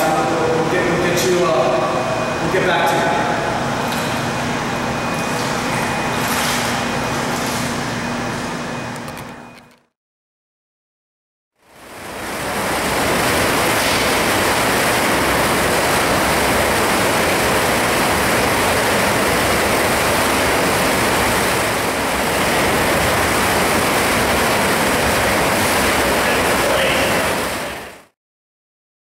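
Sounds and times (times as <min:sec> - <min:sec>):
spa pool water rushing: 0:11.6 - 0:28.2.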